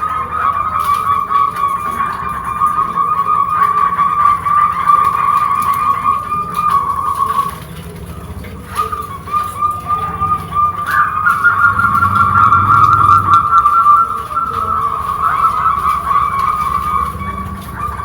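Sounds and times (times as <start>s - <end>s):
dove trilling coo: 0.0s - 18.0s
low rumble: 10.1s - 14.3s.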